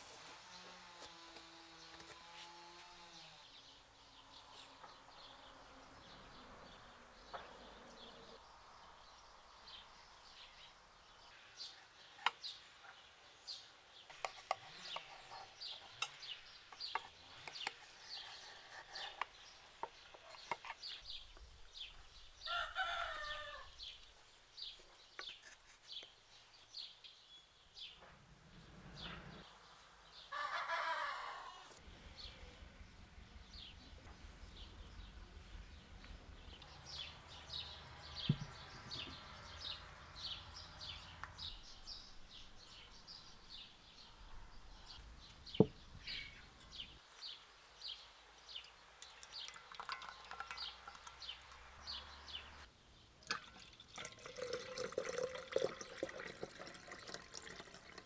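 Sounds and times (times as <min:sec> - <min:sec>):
chickens calling: 0:30.3 - 0:31.8.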